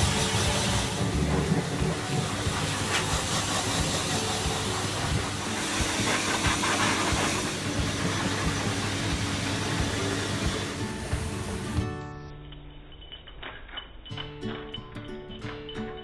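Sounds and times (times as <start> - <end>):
hose hissing: 0.0 - 11.9.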